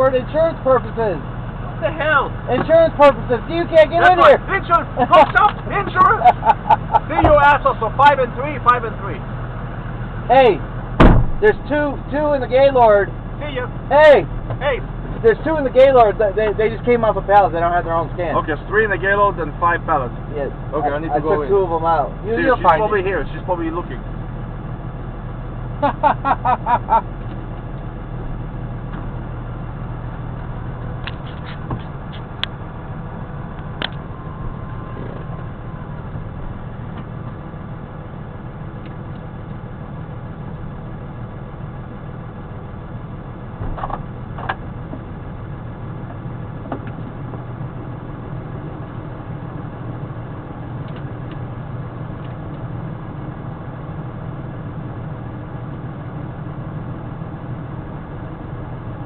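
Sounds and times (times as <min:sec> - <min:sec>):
truck engine running: 0:00.0 - 0:59.0
sharp clicks and knocks: 0:43.6 - 0:45.0.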